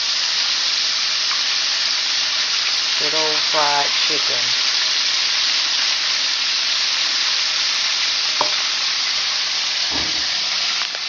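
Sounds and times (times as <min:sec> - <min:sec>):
chicken frying in hot oil: 0:00.0 - 0:11.0
soft knock: 0:08.4 - 0:08.6.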